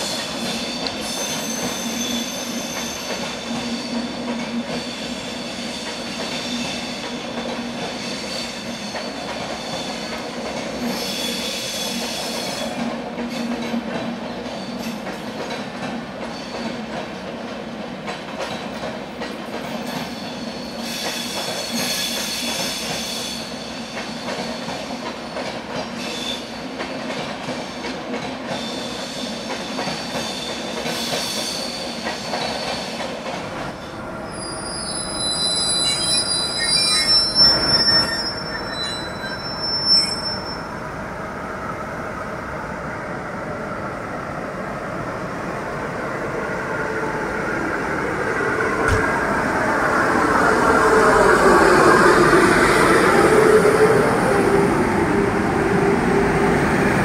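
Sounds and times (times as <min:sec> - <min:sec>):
electric locomotive hauling train: 0:00.0 - 0:57.0
metallic wheel squeal: 0:34.3 - 0:40.7.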